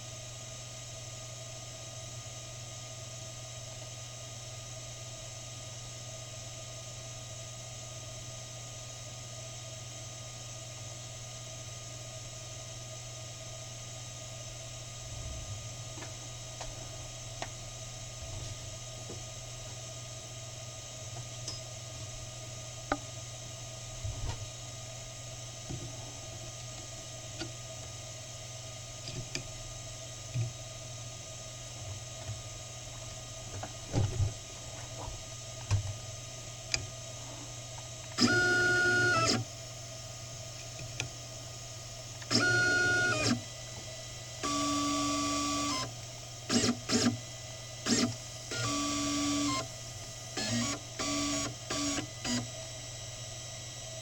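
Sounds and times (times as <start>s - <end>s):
low machine hum: 11.4s - 46.5s
stepper motors whining: 50.4s - 52.4s.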